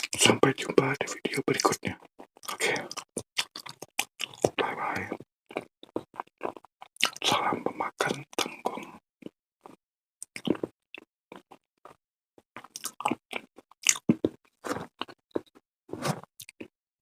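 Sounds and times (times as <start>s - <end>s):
person chewing food: 2.1s - 7.3s, 9.6s - 10.7s, 12.6s - 16.6s
wet mouth noises: 2.3s - 7.4s, 9.6s - 10.7s.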